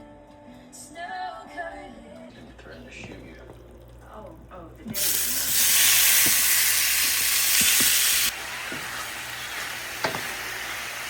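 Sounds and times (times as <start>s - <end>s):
chicken sizzling in a pan: 5.0s - 11.0s.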